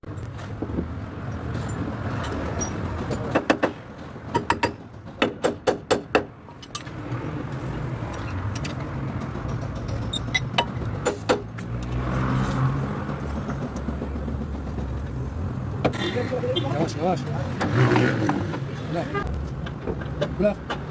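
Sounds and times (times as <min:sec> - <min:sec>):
sharp clicks and knocks: 0:00.0 - 0:16.0, 0:17.5 - 0:20.9
vehicle engine running: 0:12.7 - 0:15.8.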